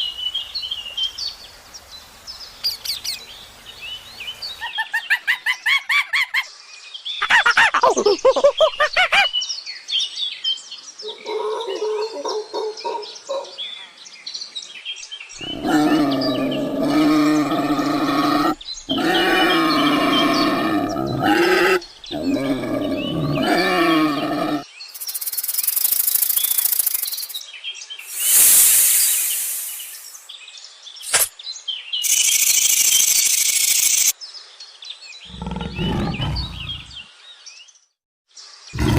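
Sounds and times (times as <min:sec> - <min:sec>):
bird chirps: 0:02.6 - 0:06.4, 0:24.8 - 0:27.4, 0:28.0 - 0:30.3, 0:32.0 - 0:34.2, 0:35.2 - 0:37.7
pitched animal calls: 0:15.4 - 0:24.6, 0:35.3 - 0:37.0
short hissing bursts: 0:28.0 - 0:30.2.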